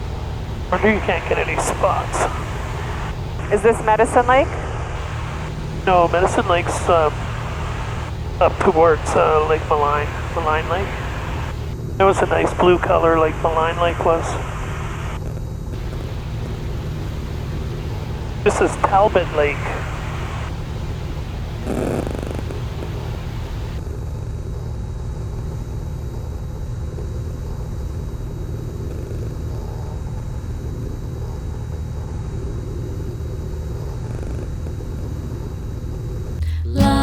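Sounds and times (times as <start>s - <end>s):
light hiss: 0.0s - 3.4s, 5.0s - 11.8s, 15.8s - 23.8s
propeller plane engine drone: 0.0s - 36.4s.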